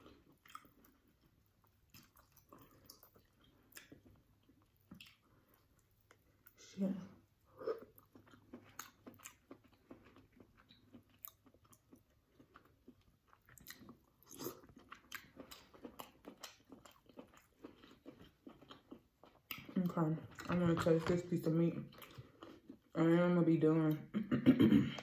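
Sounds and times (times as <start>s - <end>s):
person chewing wet mouth smacks: 0.2s - 6.6s, 7.6s - 20.5s.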